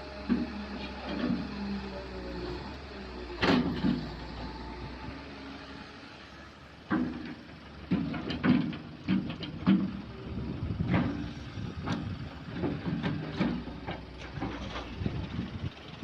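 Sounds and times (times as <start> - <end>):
excavator engine running: 0.0 - 16.0
knocks and clanks: 3.4 - 4.2, 6.8 - 10.1, 10.8 - 15.2.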